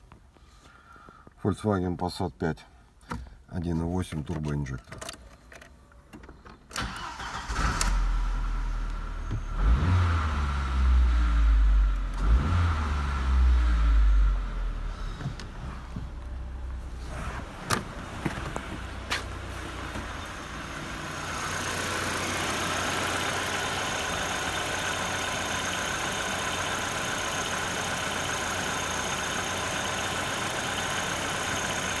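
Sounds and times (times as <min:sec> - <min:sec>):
car engine running: 0:08.5 - 0:32.0.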